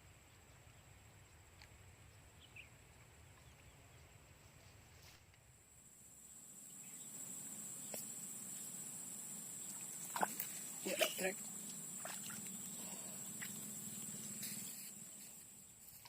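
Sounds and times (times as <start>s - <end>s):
insects trilling: 5.6s - 16.0s.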